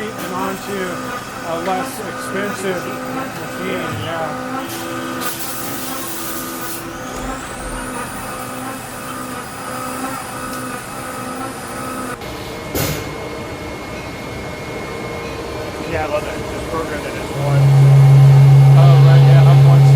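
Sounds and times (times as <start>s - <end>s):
compressed air hissing: 0.0s - 12.1s
high whine: 0.0s - 19.9s
machine hum: 0.0s - 19.9s.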